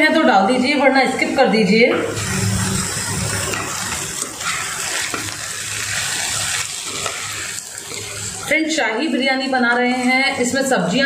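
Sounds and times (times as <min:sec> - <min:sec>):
vegetables sizzling in oil: 0:01.1 - 0:11.0
spoon stirring in a pan: 0:03.3 - 0:08.5.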